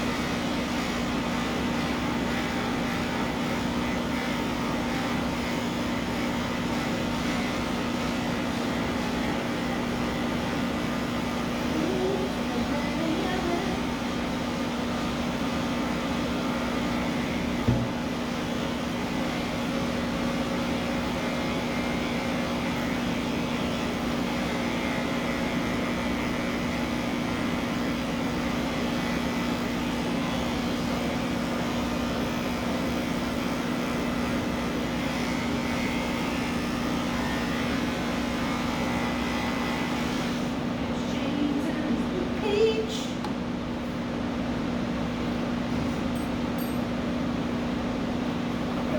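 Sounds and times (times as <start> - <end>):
electric pet clippers humming: 0.0 - 43.1
short knock: 17.7 - 18.0.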